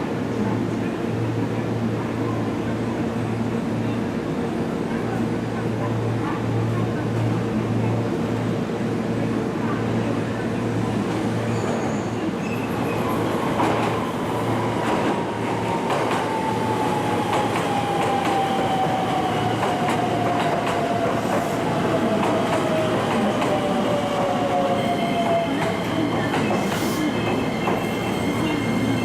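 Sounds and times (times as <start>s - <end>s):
wheels rumbling and clicking on rails: 9.2s - 29.0s.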